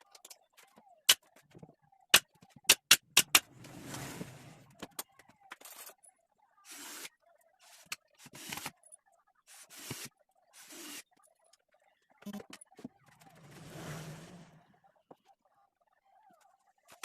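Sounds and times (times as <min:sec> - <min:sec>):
scraping or rubbing noise: 0:03.4 - 0:04.8, 0:13.1 - 0:14.7.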